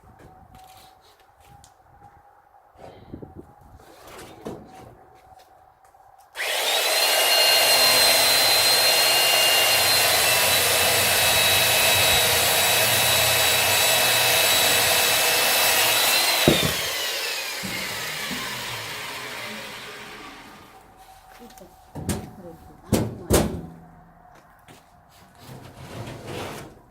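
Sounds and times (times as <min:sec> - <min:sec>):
electric saw cutting wood: 0:06.4 - 0:21.0.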